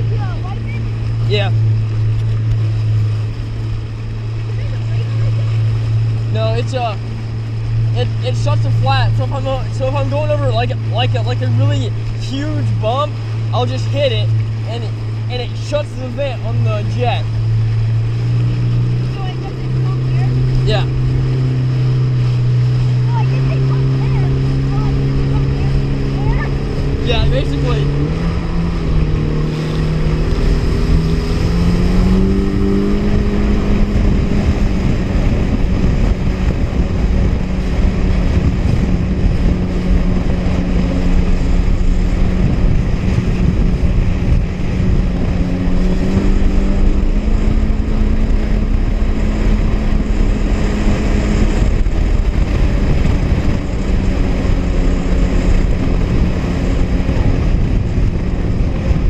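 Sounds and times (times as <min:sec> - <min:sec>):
jet ski engine running: 0:00.0 - 0:59.0
rushing wind and water: 0:00.0 - 0:59.0.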